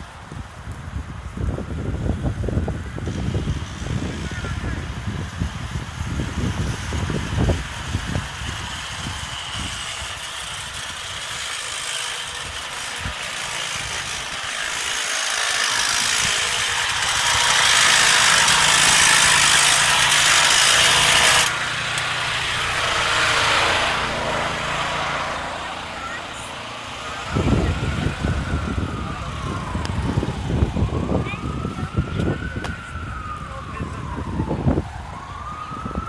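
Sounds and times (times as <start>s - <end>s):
motor running: 3.0s - 31.5s
loud rushing hiss: 3.2s - 28.5s
wind thumps on microphone: 27.2s - 36.0s.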